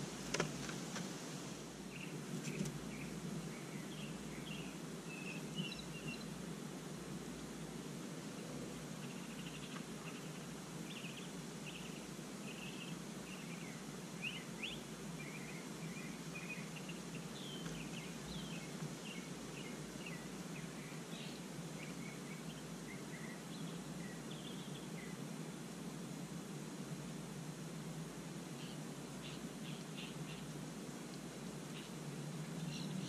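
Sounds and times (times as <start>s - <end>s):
low background noise: 0.0s - 33.0s
small birds chirping: 1.7s - 6.5s, 7.4s - 25.7s, 28.4s - 33.0s.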